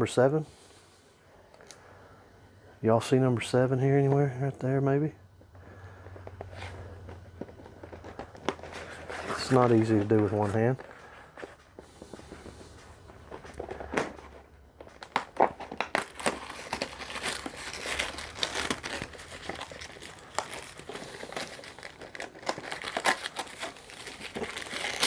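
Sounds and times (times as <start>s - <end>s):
packaging crinkling and tearing: 7.4s - 25.0s.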